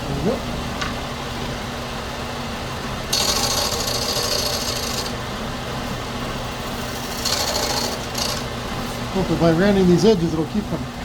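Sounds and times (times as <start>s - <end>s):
power tool running: 1.5s - 11.0s
rasping grind on glass edge: 3.2s - 5.2s, 7.0s - 8.5s.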